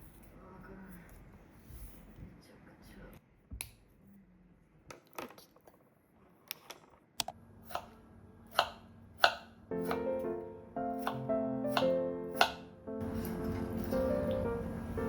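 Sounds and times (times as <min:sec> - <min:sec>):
knife chopping on cutting board: 0:07.7 - 0:07.9, 0:08.5 - 0:10.3, 0:11.0 - 0:12.7
soft background music: 0:09.7 - 0:15.0.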